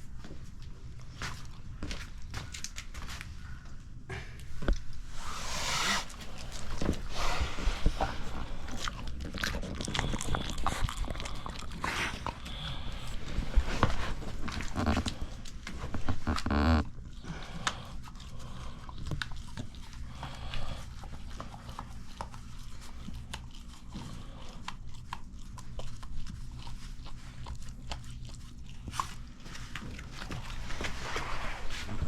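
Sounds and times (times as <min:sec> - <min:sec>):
dog vocalizing: 0:05.8 - 0:15.4.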